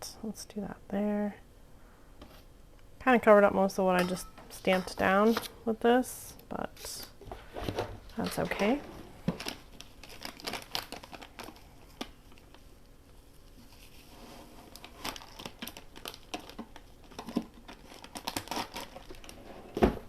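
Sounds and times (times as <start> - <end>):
paper rustling and crinkling: 7.4 - 12.7, 13.4 - 19.9.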